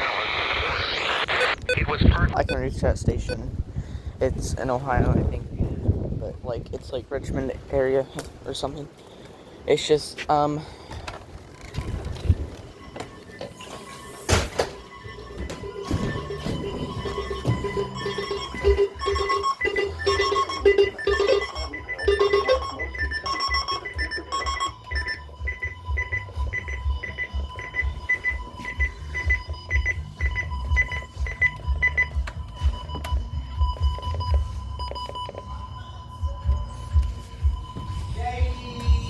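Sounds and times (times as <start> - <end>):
steady alert tone: 0.0 - 2.7
electronic beeping: 0.0 - 3.5, 12.2 - 39.0
wind rumbling on microphone: 1.6 - 7.8, 11.4 - 12.7.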